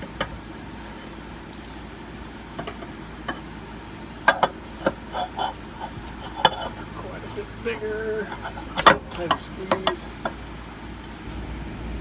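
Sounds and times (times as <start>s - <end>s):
metal parts clinking and clanking: 4.2s - 10.2s.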